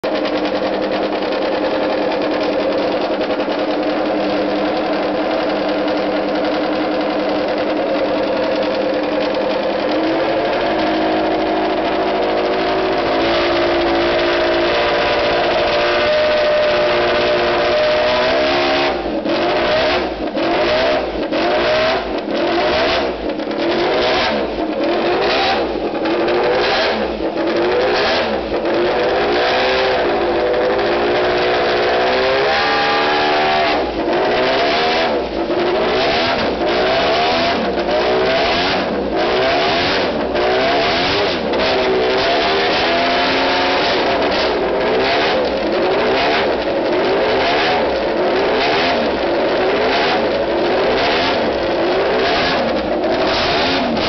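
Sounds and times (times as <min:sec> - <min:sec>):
motorcycle engines idling: 0:00.0 - 0:18.0
engine throttle blips: 0:00.0 - 0:54.0.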